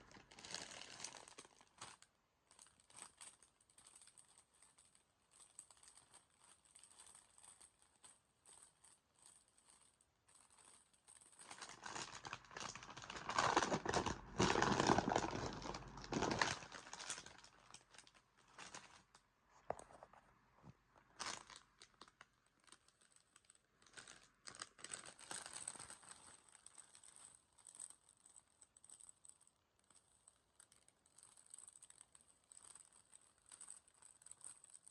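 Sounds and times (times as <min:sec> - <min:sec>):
crisp bag crinkling: 0:00.0 - 0:20.2, 0:21.0 - 0:34.9
bag tearing: 0:11.5 - 0:17.8.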